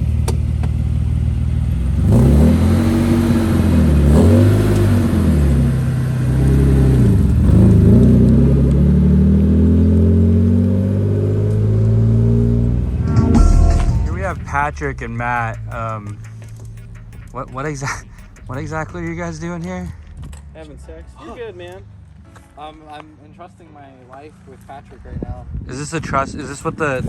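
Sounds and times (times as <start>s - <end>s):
car engine accelerating: 0.0s - 21.2s.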